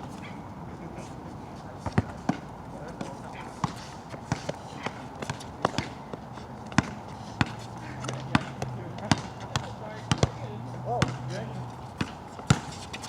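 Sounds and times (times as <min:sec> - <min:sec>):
ball bouncing on wet court: 0:05.2 - 0:06.0, 0:06.7 - 0:10.4, 0:11.0 - 0:11.3, 0:12.0 - 0:13.0.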